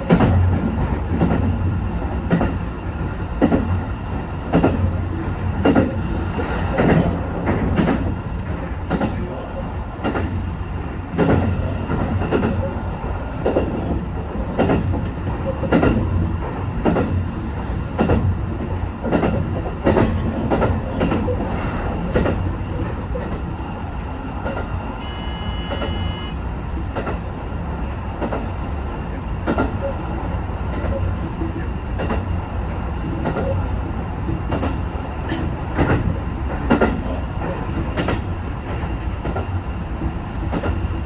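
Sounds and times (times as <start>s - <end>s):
train rumble: 0.0s - 41.0s
train wheels clicking: 4.4s - 9.2s, 13.4s - 27.4s
short electronic tone: 25.0s - 26.4s.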